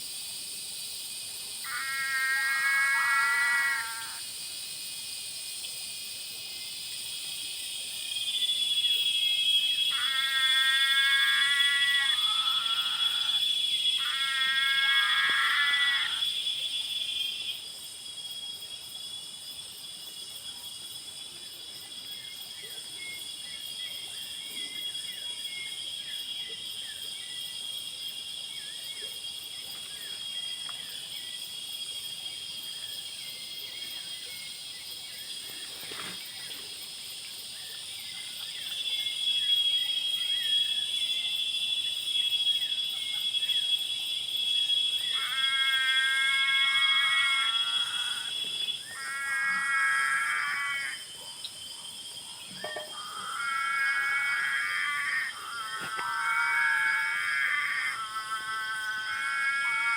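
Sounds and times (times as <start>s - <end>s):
high-pitched insect trill: 0.0s - 59.9s
frog calls: 1.6s - 4.3s, 9.8s - 16.4s, 45.0s - 51.2s, 52.6s - 59.9s.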